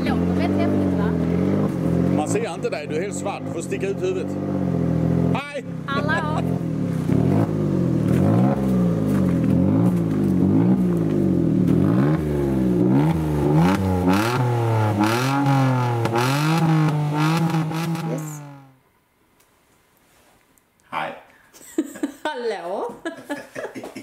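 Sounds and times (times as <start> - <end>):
car engine revving: 0.0 - 18.8.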